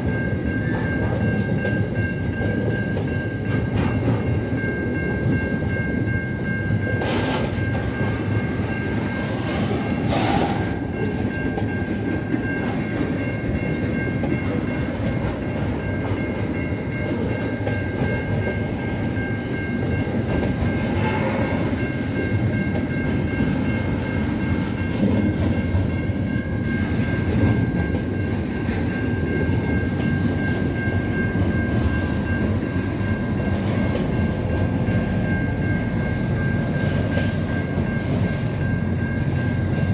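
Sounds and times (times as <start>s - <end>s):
train rumbling on track: 0.0s - 39.9s.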